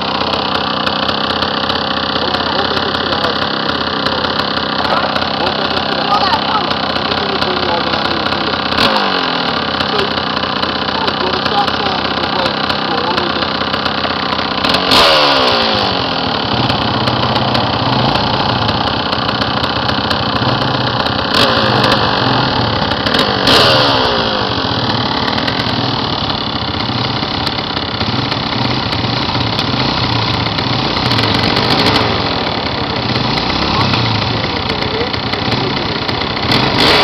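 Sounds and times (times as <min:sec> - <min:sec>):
dirt bike engine: 0:00.0 - 0:37.0.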